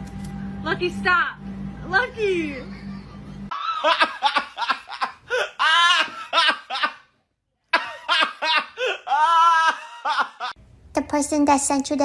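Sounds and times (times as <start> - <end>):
person laughing hard: 3.5 - 7.1, 7.8 - 10.6.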